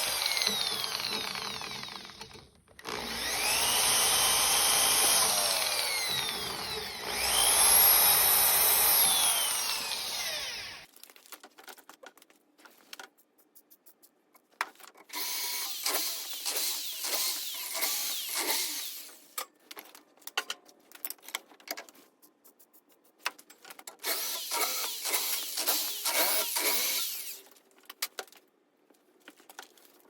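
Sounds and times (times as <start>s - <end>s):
power drill running: 0.0s - 10.9s, 15.2s - 19.2s, 24.0s - 27.4s
tools clicking and knocking: 19.4s - 22.0s.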